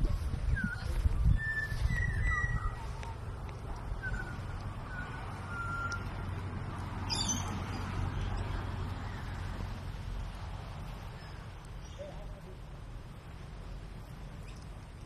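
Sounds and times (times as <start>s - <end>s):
low steady rumble: 0.0s - 15.0s
bird whistled notes: 0.5s - 2.8s, 4.0s - 6.1s.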